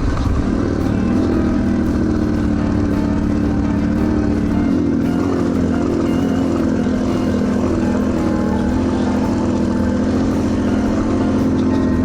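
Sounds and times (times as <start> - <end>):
engine running rough: 0.0 - 12.0.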